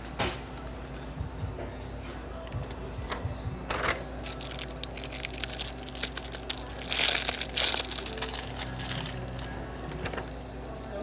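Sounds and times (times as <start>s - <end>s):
crinkling material being squeezed: 4.2s - 9.6s.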